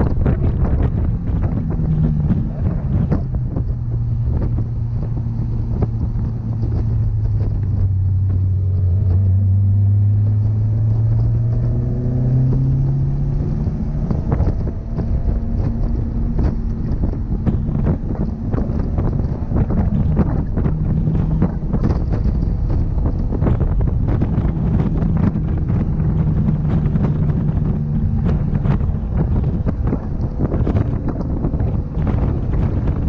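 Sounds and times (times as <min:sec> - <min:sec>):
car engine accelerating: 0:00.0 - 0:33.0
road and wind noise: 0:00.0 - 0:33.0
knocks and rattles: 0:13.8 - 0:33.0.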